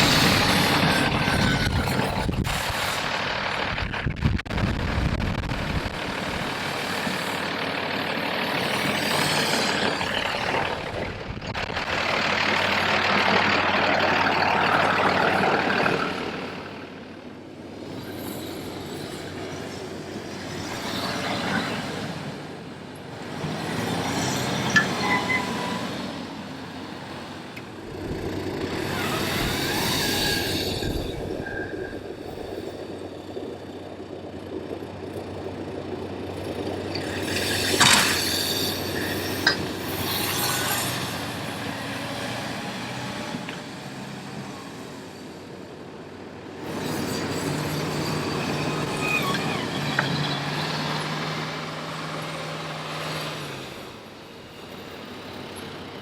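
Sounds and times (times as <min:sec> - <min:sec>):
heavy vehicles passing: 0:20.7 - 0:31.0.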